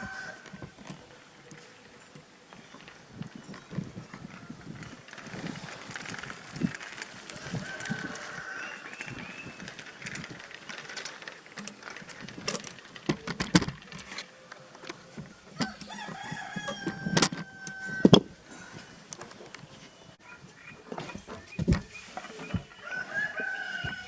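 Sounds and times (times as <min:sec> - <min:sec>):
rooster crowing: 0:00.0 - 0:00.8, 0:07.3 - 0:09.7, 0:15.5 - 0:18.8, 0:22.7 - 0:24.0.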